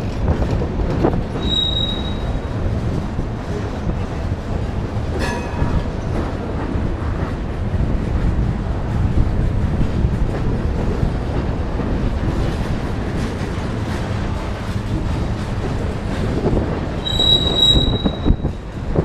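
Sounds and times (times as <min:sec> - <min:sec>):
freight train wheels rumbling: 0:00.0 - 0:19.0
high wheel squeal: 0:01.4 - 0:02.5, 0:17.0 - 0:18.6.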